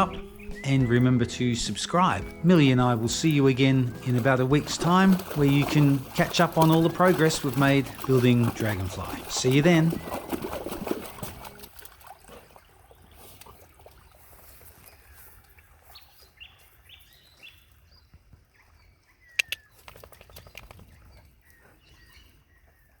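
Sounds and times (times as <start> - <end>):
birds chirping: 0.0 - 11.6
faint outdoor background: 0.0 - 11.7
sharp clicks: 19.4 - 20.8.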